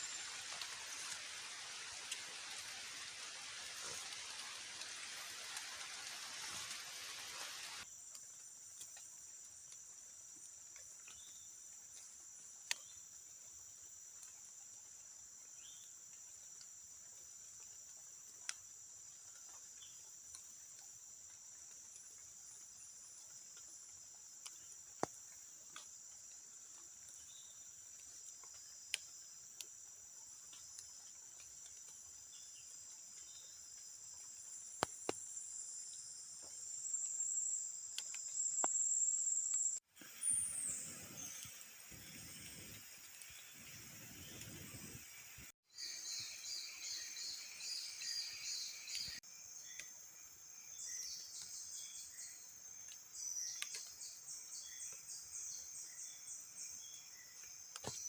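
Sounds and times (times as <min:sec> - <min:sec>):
heavy rain hiss: 0:00.0 - 0:07.8, 0:39.9 - 0:49.2
crickets and night insects: 0:00.0 - 0:58.0.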